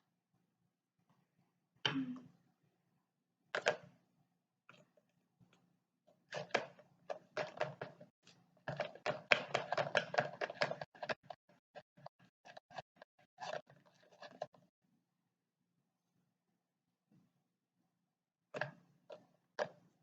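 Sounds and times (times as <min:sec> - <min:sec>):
plastic toy taps and clicks: 0:08.7 - 0:11.4.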